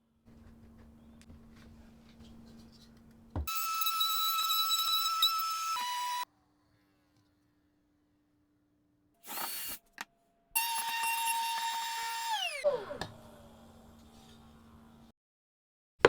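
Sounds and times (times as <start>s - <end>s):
power tool motor whining: 3.5s - 6.2s, 10.6s - 14.5s.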